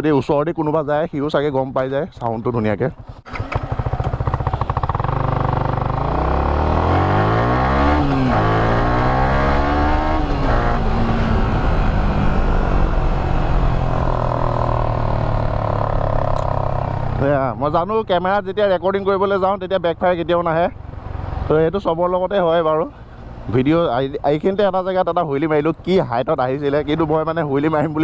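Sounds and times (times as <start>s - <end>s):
motorcycle engine accelerating: 3.0s - 17.8s.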